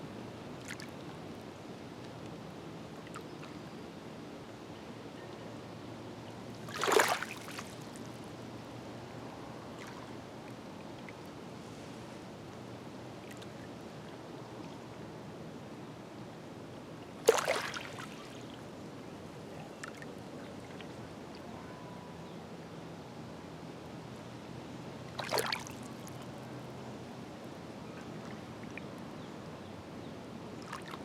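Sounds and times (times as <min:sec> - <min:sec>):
small waves lapping on rocks: 0:06.6 - 0:08.0, 0:17.2 - 0:18.6, 0:25.1 - 0:26.2
water splash: 0:06.7 - 0:07.8, 0:17.3 - 0:18.2, 0:25.2 - 0:25.8.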